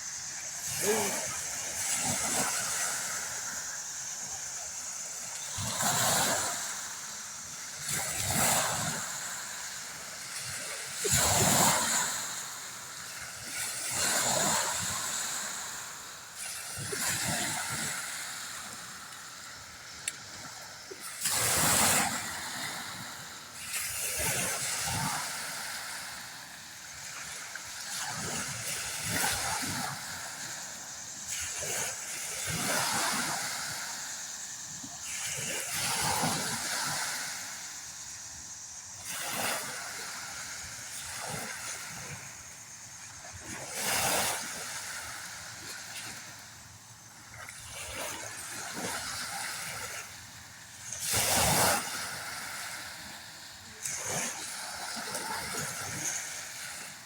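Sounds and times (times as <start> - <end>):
steady background hiss: 0.0 - 23.7.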